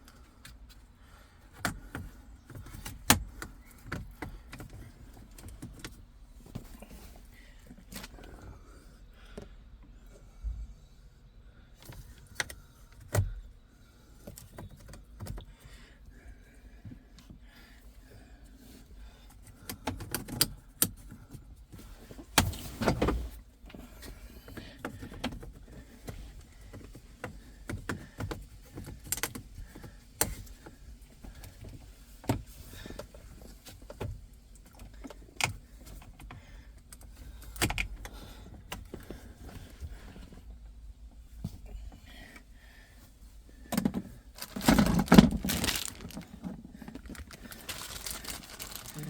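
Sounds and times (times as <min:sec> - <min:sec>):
scraping rustle: 0:44.4 - 0:49.0.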